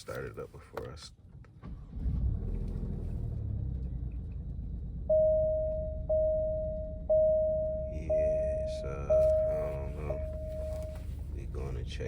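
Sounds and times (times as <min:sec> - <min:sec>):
car engine starting and idling: 0:01.2 - 0:12.0
dashboard chime dings: 0:05.1 - 0:11.1.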